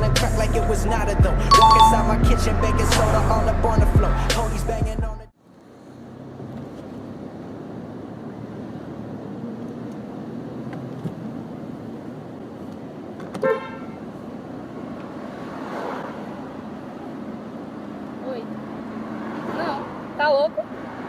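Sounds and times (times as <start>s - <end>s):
street traffic noise: 0.0s - 21.0s
car horn beep: 1.5s - 2.2s, 13.4s - 14.0s.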